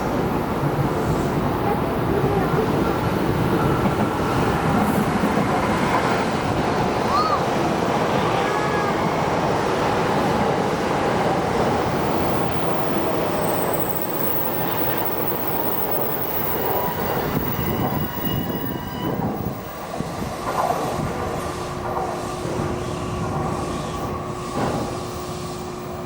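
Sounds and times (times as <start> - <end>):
train passing at speed: 0.0 - 26.0
faint high squealing: 12.0 - 19.9
rail joint clacks: 12.9 - 26.0.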